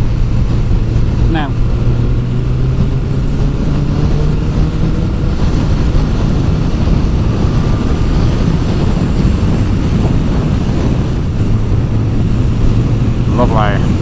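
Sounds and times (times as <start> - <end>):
motorcycle engine drone: 0.0 - 14.0
wind rush on microphone: 0.0 - 14.0.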